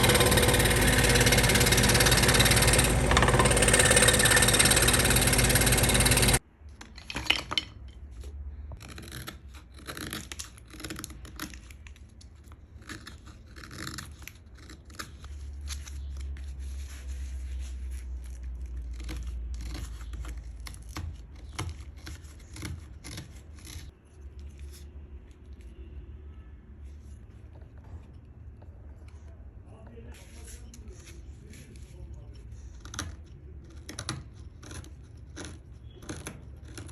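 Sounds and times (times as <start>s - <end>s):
power tool running: 0.0s - 6.4s.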